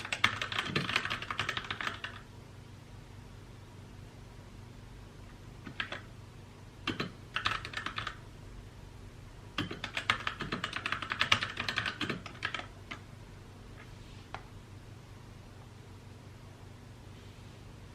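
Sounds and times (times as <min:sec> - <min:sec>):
mechanical keyboard typing: 0:00.0 - 0:02.2, 0:05.6 - 0:06.1, 0:06.8 - 0:08.2, 0:09.6 - 0:13.0.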